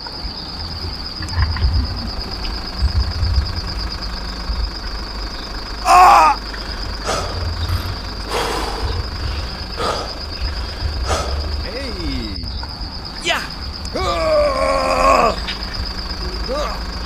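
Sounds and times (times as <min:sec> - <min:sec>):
high-pitched whine: 0:00.0 - 0:17.0
low engine rumble: 0:00.0 - 0:17.0
wavering bird call: 0:05.3 - 0:17.0.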